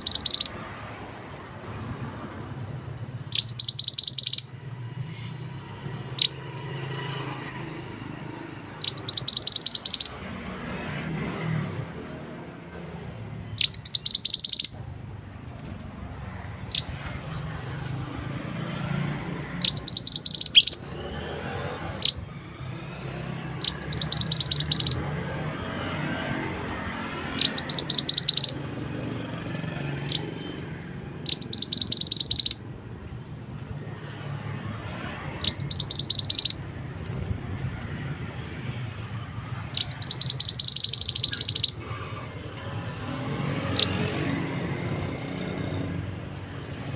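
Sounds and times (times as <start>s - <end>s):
songbird trilling: 0.0s - 0.7s, 2.1s - 5.3s, 6.0s - 6.4s, 7.5s - 10.2s, 13.4s - 15.0s, 16.6s - 21.0s, 21.8s - 22.3s, 23.4s - 25.2s, 26.8s - 28.7s, 30.0s - 32.7s, 33.6s - 37.8s, 39.3s - 42.0s, 43.7s - 44.0s.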